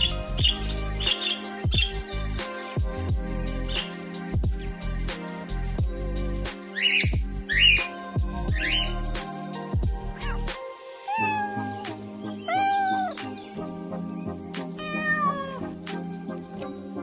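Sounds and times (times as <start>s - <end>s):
background music: 0.0s - 17.0s
cat meowing: 10.2s - 10.5s, 11.1s - 13.2s, 14.8s - 15.7s.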